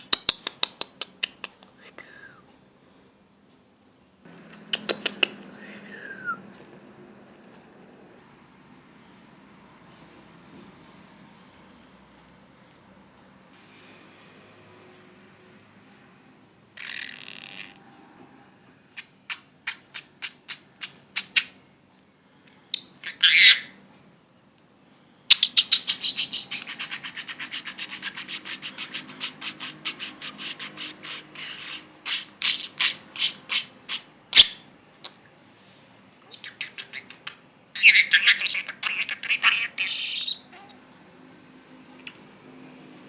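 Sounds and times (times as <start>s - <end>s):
budgerigar clicks and chirps: 0.0s - 1.6s, 4.5s - 5.5s, 19.0s - 21.6s, 25.3s - 35.2s, 36.3s - 40.8s
budgerigar warbled whistling: 25.3s - 34.6s, 37.8s - 40.8s.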